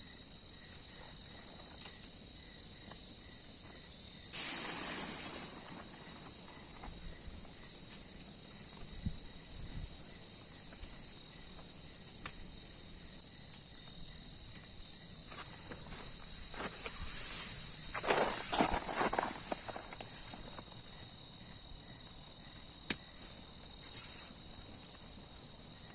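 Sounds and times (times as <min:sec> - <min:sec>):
insects droning: 0:00.0 - 0:25.9
rustling and crunching of movement: 0:04.4 - 0:09.0, 0:14.6 - 0:21.0.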